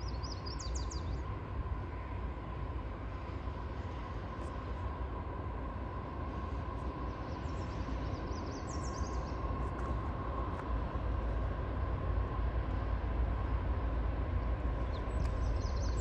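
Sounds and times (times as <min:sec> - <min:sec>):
freight train rumbling: 0:00.0 - 0:16.0
bird chirping: 0:14.8 - 0:16.0.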